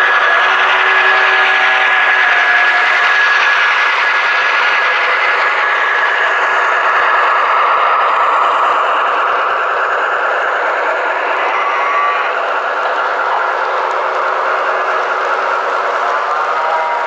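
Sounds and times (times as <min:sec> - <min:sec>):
model train rolling on track: 0:00.0 - 0:17.0
thin high tone: 0:10.4 - 0:17.0.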